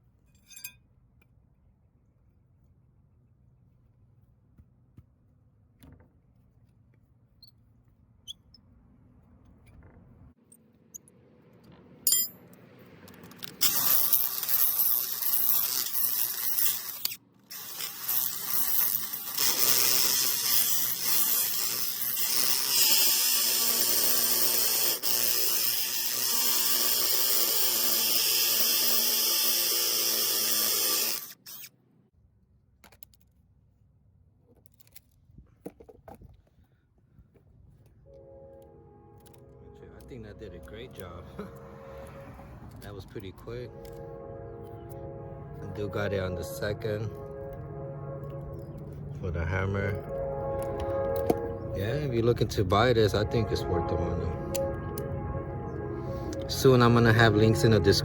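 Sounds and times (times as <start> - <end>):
hammer drill boring into concrete: 13.4 - 31.7.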